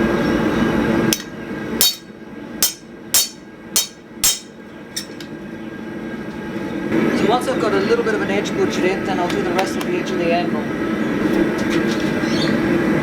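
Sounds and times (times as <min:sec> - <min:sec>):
hammer striking hot steel on anvil: 0:01.1 - 0:05.1.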